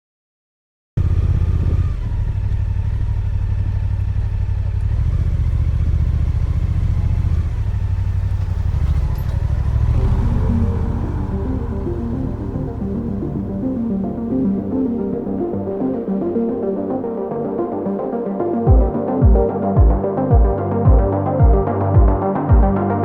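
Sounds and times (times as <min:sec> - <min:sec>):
motorcycle engine running: 0:01.0 - 0:15.4
music: 0:10.0 - 0:23.0.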